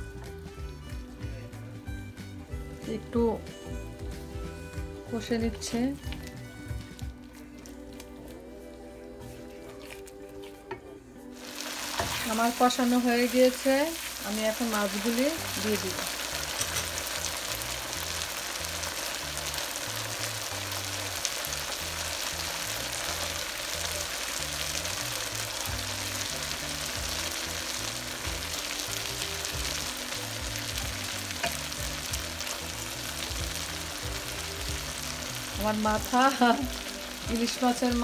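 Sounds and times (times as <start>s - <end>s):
oil sizzling in a frying pan: 11.4s - 38.0s.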